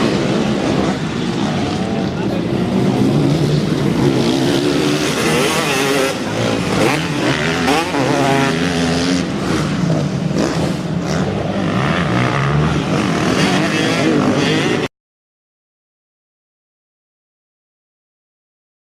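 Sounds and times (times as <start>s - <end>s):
motocross engines revving: 0.0s - 14.9s.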